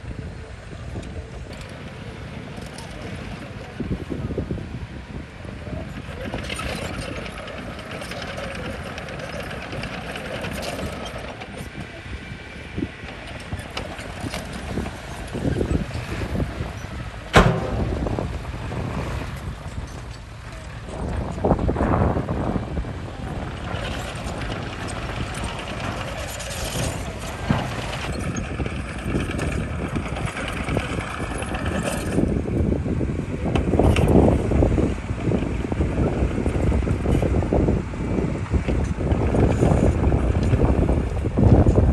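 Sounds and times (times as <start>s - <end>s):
bulldozer engine rumble: 0.0s - 41.9s
metallic clatter: 16.8s - 21.0s
knocks: 17.3s - 18.4s
loud bang: 17.3s - 18.9s.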